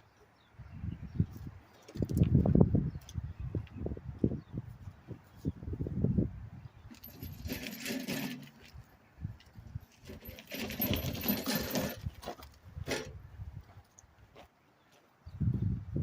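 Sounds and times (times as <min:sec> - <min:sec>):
metal equipment clinking: 0:06.9 - 0:08.8, 0:09.9 - 0:13.1.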